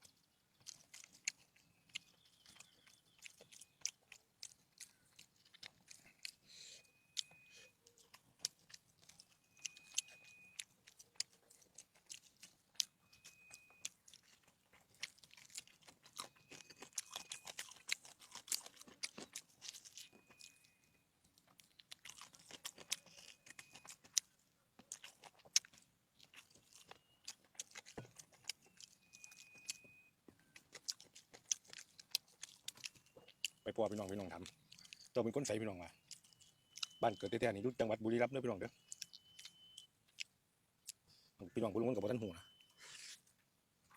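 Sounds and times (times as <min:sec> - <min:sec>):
person chewing food: 0:00.0 - 0:43.9
faint short high beep: 0:06.5 - 0:07.9, 0:09.4 - 0:10.6, 0:13.0 - 0:13.8, 0:29.0 - 0:30.5, 0:35.6 - 0:39.9, 0:41.6 - 0:43.2.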